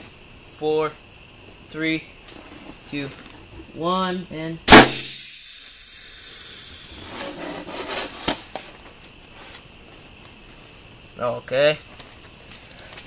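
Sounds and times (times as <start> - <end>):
sharp knock: 4.7 - 5.7
compressed air hissing: 4.7 - 8.0.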